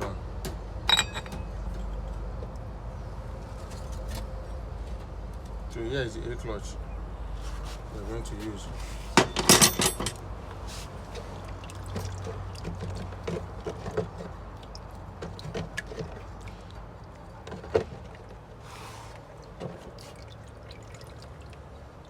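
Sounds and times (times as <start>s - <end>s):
low background hum: 0.0s - 22.0s
metal parts clicking on bench: 0.9s - 1.4s, 9.2s - 10.2s.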